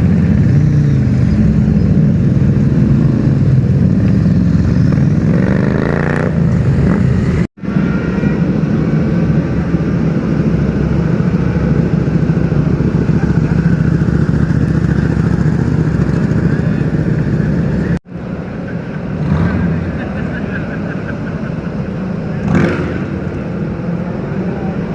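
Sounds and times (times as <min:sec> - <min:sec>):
motorcycle engine revving: 0:00.0 - 0:08.0, 0:08.7 - 0:18.0, 0:22.2 - 0:24.0
loud motorcycle engine running: 0:00.0 - 0:18.0.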